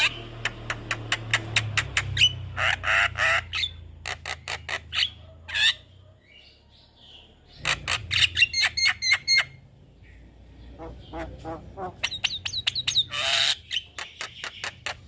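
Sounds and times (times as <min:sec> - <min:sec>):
myna clicking and squawking: 0:00.0 - 0:05.8, 0:10.8 - 0:15.0.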